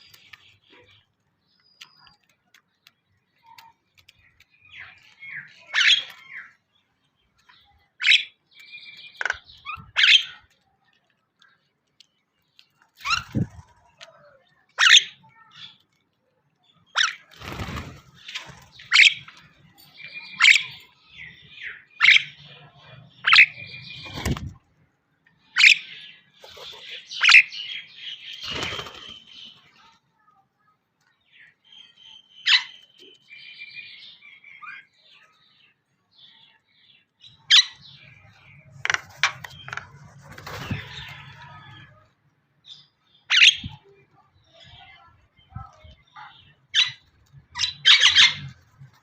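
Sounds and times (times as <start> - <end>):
birds chirping shrilly: 4.6 - 6.6, 13.0 - 13.9, 16.9 - 24.6, 25.5 - 29.9, 42.8 - 49.0
wings flapping: 17.3 - 19.0, 24.0 - 24.6, 28.4 - 29.4, 38.8 - 41.8.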